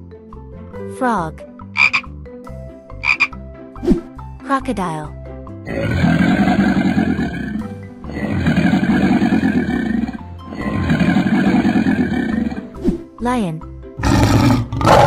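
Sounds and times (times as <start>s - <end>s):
background music: 0.0s - 15.0s
crocodile growl: 5.7s - 12.8s, 14.0s - 15.0s.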